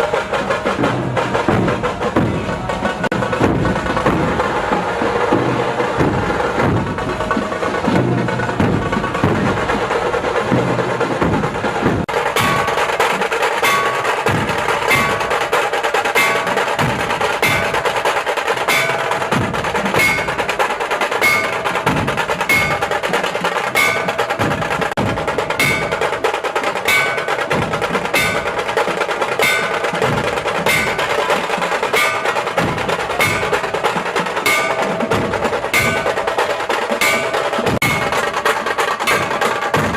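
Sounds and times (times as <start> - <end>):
music with percussion beat: 0.0 - 39.9
bell-like ringing strikes: 12.3 - 23.0, 23.6 - 24.7, 25.6 - 26.2, 26.9 - 28.7, 29.4 - 38.4, 39.0 - 39.8.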